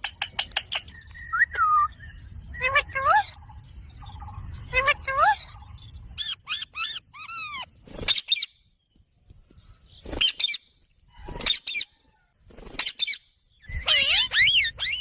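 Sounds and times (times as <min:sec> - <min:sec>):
parrot squawking: 0:04.7 - 0:07.7, 0:13.7 - 0:15.0.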